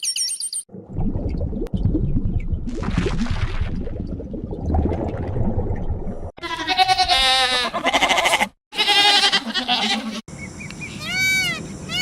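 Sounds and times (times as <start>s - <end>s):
animal bleating: 6.4s - 10.2s, 11.0s - 12.0s.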